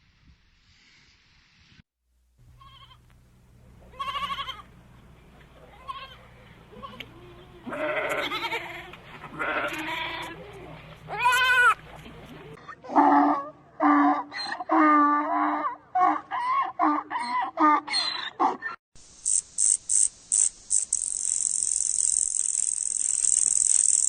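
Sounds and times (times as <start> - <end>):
goat bleating: 2.6 - 3.0, 3.9 - 4.7, 5.7 - 11.8.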